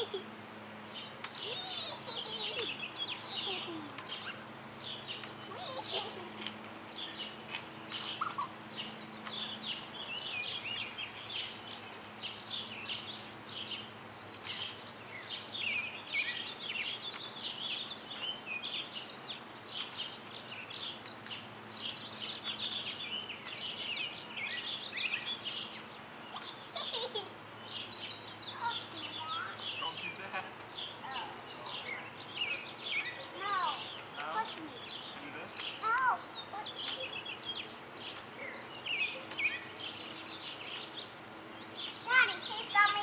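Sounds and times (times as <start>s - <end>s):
birds chirping and singing: 0.0s - 43.0s.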